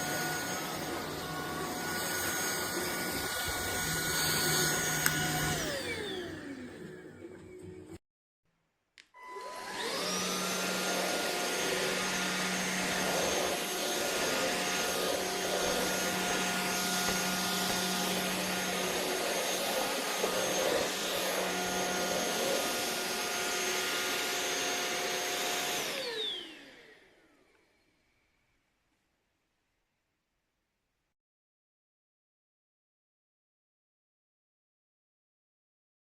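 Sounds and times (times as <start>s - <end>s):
vacuum cleaner motor whine: 0.0s - 7.2s, 9.2s - 28.5s.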